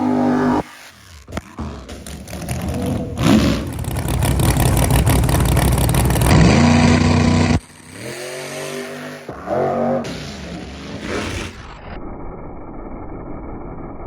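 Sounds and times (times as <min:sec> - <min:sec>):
truck engine at full throttle: 0:00.0 - 0:11.6
quieter engine rising in pitch: 0:02.1 - 0:11.0.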